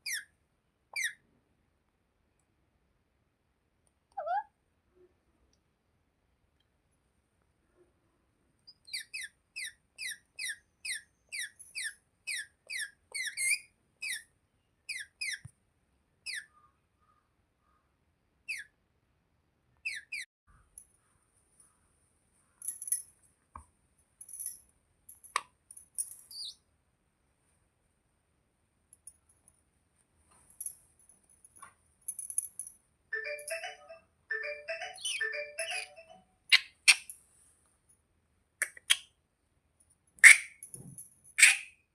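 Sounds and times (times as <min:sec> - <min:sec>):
parakeet chirping: 0:00.0 - 0:00.3, 0:01.0 - 0:01.2, 0:08.7 - 0:14.2, 0:14.9 - 0:15.4, 0:16.2 - 0:16.6, 0:18.5 - 0:18.7, 0:19.8 - 0:20.3, 0:26.3 - 0:26.6, 0:33.2 - 0:37.1, 0:40.2 - 0:40.5, 0:41.4 - 0:41.7
parakeet chattering: 0:08.9 - 0:14.2, 0:14.9 - 0:15.4, 0:34.7 - 0:37.1, 0:40.2 - 0:40.5, 0:41.4 - 0:41.7.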